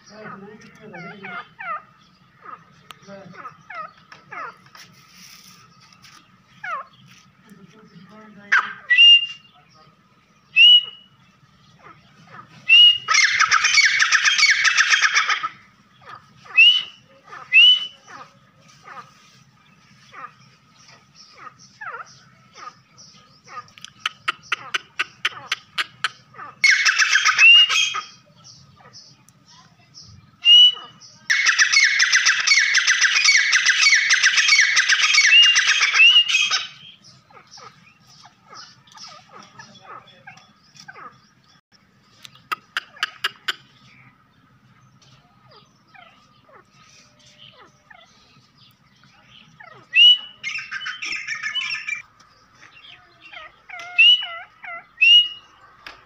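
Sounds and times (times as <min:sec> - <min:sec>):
bird whistled notes: 0:08.9 - 0:09.6, 0:10.5 - 0:11.2, 0:12.7 - 0:15.1, 0:16.5 - 0:18.1, 0:26.7 - 0:28.2, 0:30.4 - 0:36.8, 0:49.9 - 0:52.0, 0:53.8 - 0:54.4, 0:55.0 - 0:55.5
bird rapid chattering call: 0:10.5 - 0:56.0.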